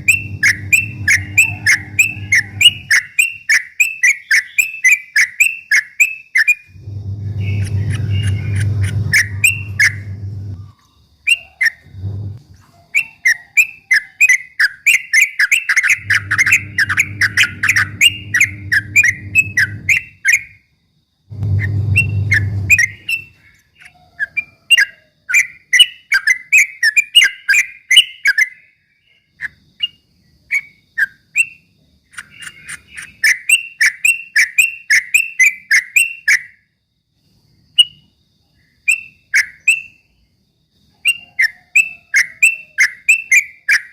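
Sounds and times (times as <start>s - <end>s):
low hum: 0.0s - 2.9s, 6.7s - 10.7s, 11.8s - 12.5s, 16.0s - 20.1s, 21.3s - 23.3s
bird singing rapid chirps: 0.0s - 12.4s, 13.0s - 20.6s, 21.3s - 36.5s.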